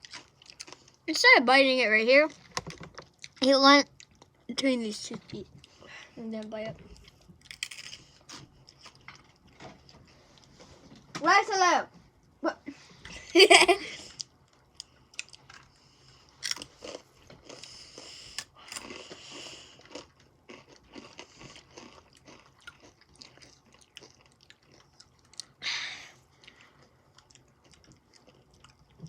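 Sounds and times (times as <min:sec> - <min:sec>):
chips crunching: 0:07.4 - 0:09.2, 0:16.4 - 0:17.7, 0:18.3 - 0:19.2, 0:19.8 - 0:25.4.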